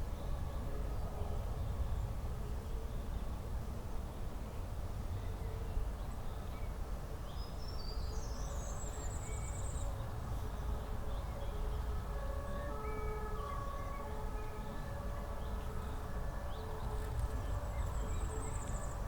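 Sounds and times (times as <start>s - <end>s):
songbird trill: 15.4s - 19.0s.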